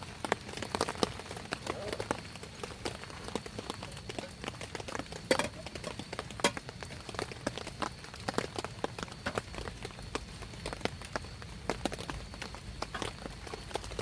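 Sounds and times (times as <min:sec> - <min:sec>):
raindrops tapping on a surface: 0:00.0 - 0:14.0
soft rain patter: 0:00.0 - 0:14.0.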